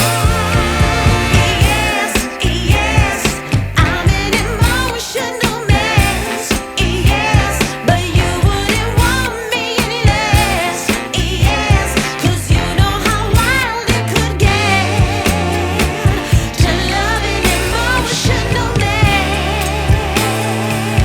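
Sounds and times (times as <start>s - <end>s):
heavy pulsing bass beat: 0.0s - 4.9s
pop song over loud sound system: 0.0s - 21.0s.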